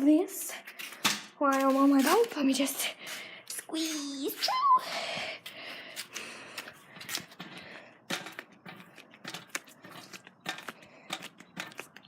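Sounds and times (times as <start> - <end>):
bicycle clicks and knocks: 6.0 - 12.0.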